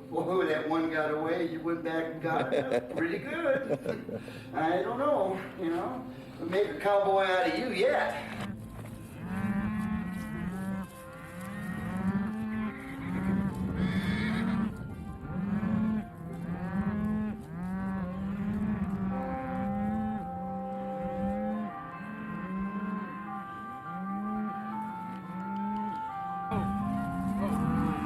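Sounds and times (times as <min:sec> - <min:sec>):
steady music tones: 0:00.0 - 0:28.0
cattle mooing: 0:08.2 - 0:25.9, 0:26.5 - 0:28.0.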